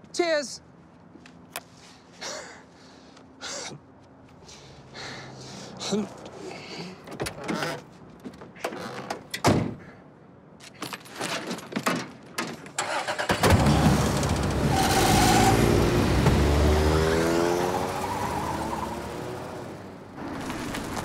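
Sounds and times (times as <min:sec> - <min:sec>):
clicks and knocks of car door: 0:09.1 - 0:09.8.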